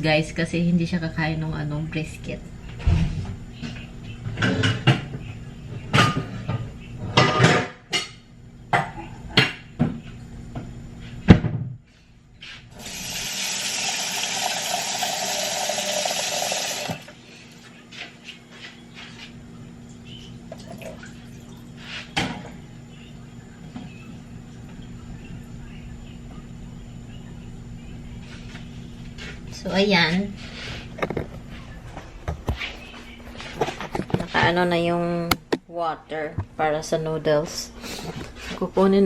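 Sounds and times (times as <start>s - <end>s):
pots and utensils clattering: 5.9s - 8.2s.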